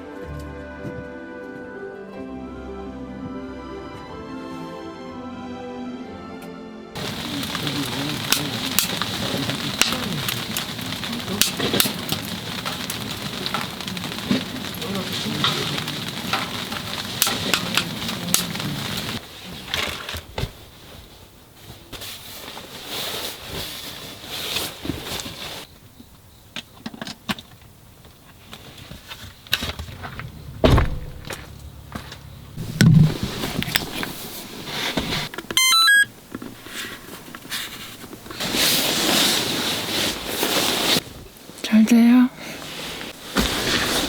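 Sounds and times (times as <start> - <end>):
loud dull thumps: 30.2 - 31.6, 32.5 - 33.7
knocks of things being handled: 30.6 - 34.1
electronic beeps: 35.6 - 36.1.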